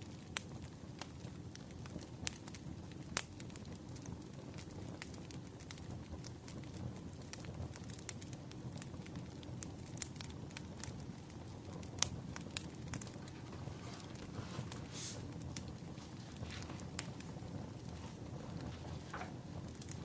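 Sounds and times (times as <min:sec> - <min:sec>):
firewood crackling and popping: 0:00.0 - 0:20.0
low rumble of flame: 0:00.0 - 0:20.0
brief hiss: 0:14.0 - 0:15.4.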